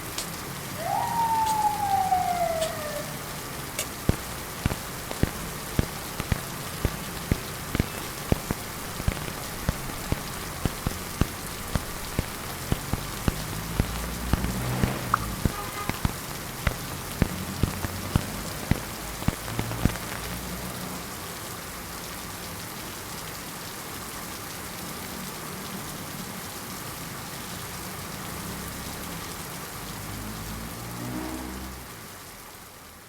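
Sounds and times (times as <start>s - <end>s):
steady rain falling: 0.0s - 33.0s
sharp drop-like taps: 3.8s - 20.4s.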